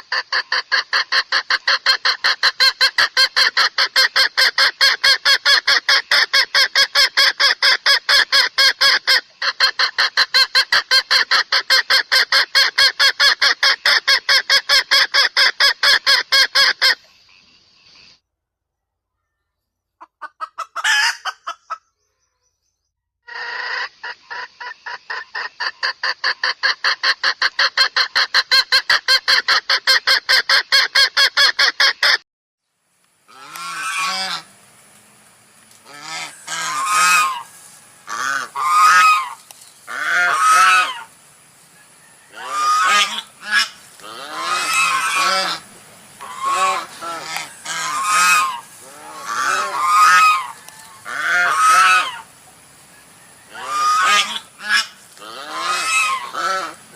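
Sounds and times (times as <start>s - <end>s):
geese honking: 33.3s - 34.6s, 35.7s - 56.9s.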